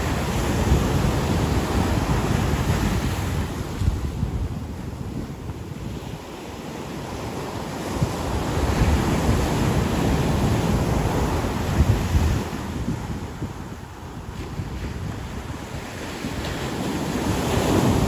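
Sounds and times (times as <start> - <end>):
ocean surf washing onto beach: 0.0 - 18.0
wind buffeting microphone: 0.0 - 18.0.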